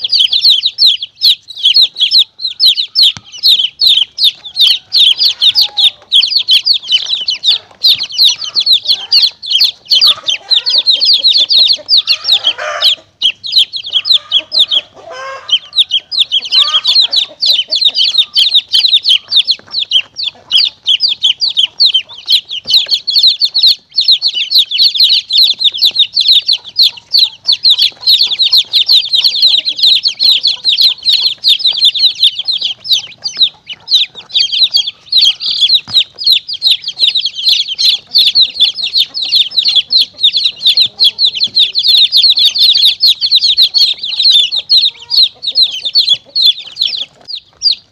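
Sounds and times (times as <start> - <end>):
chicks peeping: 0.0 - 47.9
lower clucking: 1.7 - 47.9.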